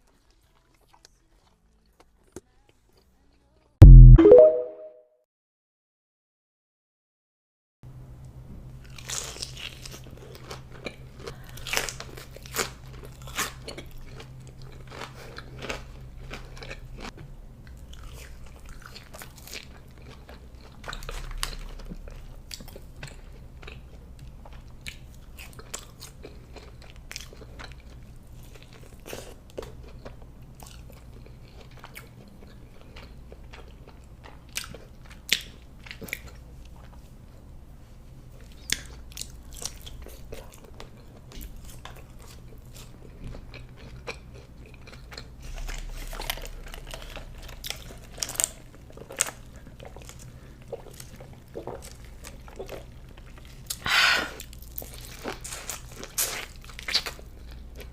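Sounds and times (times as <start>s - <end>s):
biting and chewing: 8.8s - 17.1s, 38.5s - 57.9s.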